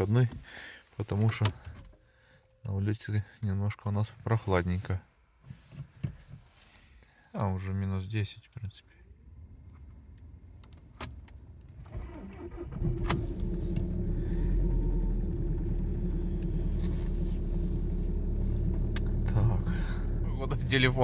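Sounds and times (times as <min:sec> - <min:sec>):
diesel engine starting and idling: 0:09.1 - 0:21.0.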